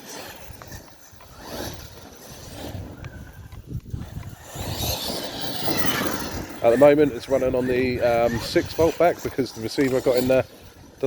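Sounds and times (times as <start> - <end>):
electric motor and tyres rumbling: 0.0 - 11.0.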